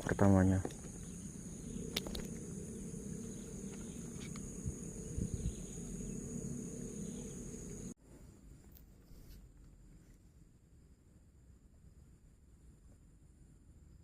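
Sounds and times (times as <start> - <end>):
low outdoor rumble: 0.0 - 8.0
insects droning: 0.0 - 14.0.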